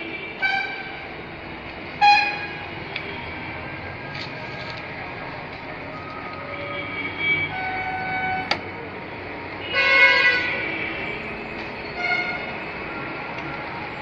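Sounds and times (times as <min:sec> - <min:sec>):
horn honks: 0:09.6 - 0:11.3, 0:12.0 - 0:12.4.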